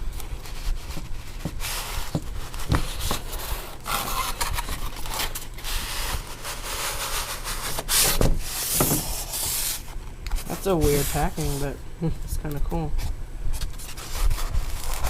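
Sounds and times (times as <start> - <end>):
cardboard box rubbing and scraping: 0.4 - 9.9, 10.5 - 11.7, 13.8 - 15.0.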